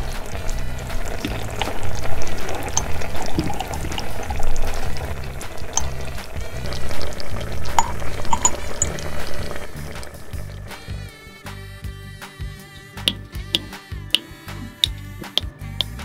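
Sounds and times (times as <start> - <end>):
water boiling in small pot: 0.0 - 11.2, 13.0 - 16.0
background music with bass line: 0.0 - 16.0.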